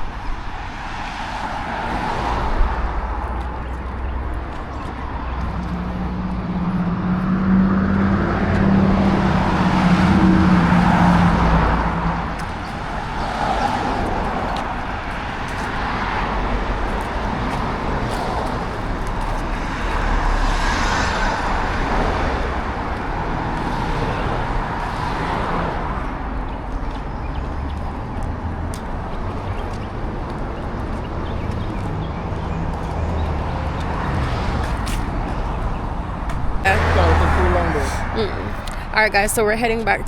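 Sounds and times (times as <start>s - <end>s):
cars passing: 0.0s - 40.0s
low engine hum: 1.4s - 40.0s.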